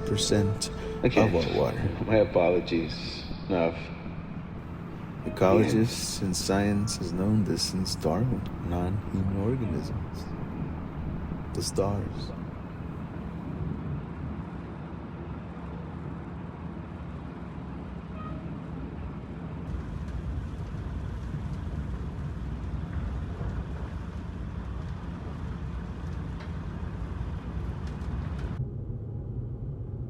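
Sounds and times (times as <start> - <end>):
low rumbling noise: 0.0 - 14.5, 28.4 - 30.0.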